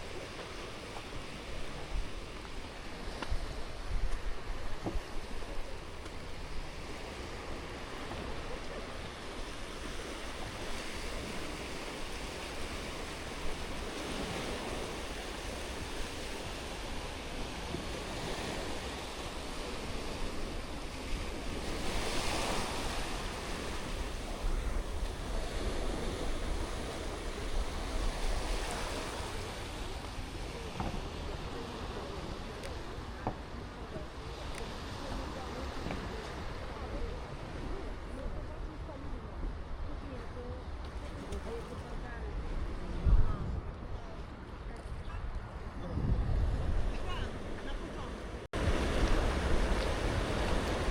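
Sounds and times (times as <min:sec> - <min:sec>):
sea waves washing onto beach: 0:00.0 - 0:50.9
wind rumbling on microphone: 0:00.0 - 0:50.9.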